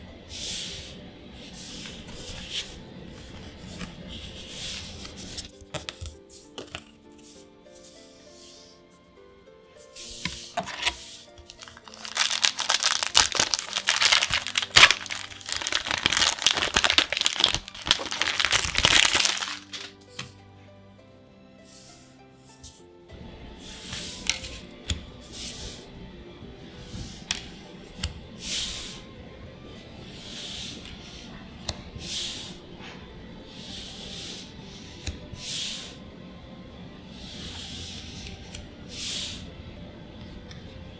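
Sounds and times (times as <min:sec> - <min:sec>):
papery swish of cards sliding: 0:00.4 - 0:06.6, 0:09.8 - 0:11.9
plastic foil wrapper crinkling: 0:11.4 - 0:20.0.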